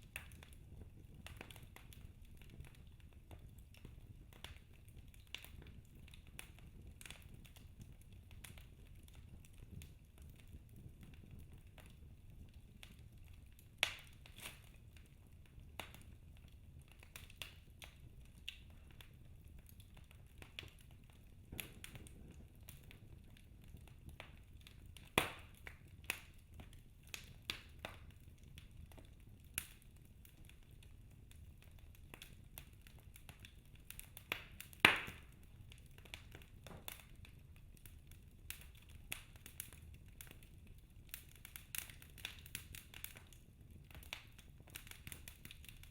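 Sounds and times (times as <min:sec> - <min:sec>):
logs crackling in fireplace: 0:00.0 - 0:45.9
faint low rumble: 0:14.6 - 0:27.5.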